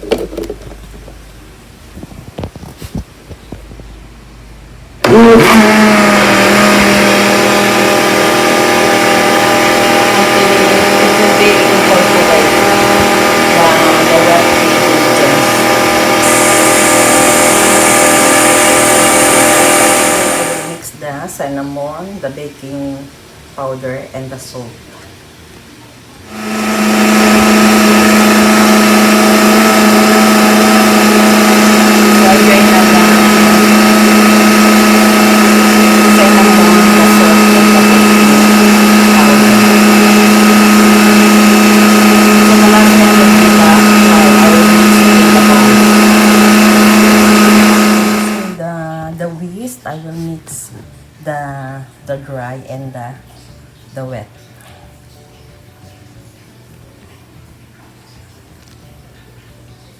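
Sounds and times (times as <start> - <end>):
electric blender running: 5.0 - 20.9, 26.3 - 48.7.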